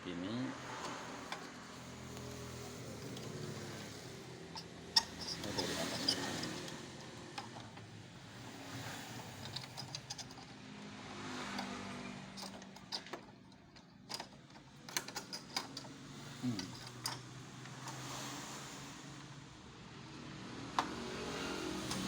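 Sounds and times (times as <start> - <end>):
vehicle engine hum: 0.0 - 14.8
plastic parts clicking and knocking: 4.6 - 8.0, 9.4 - 10.6, 12.3 - 16.0, 16.6 - 18.0.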